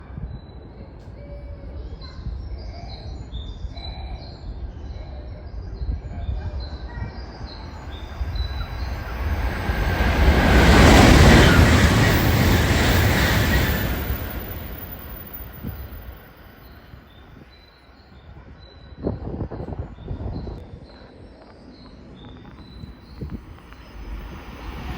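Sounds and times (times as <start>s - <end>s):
bullet train passing: 7.6s - 17.2s, 22.7s - 24.9s.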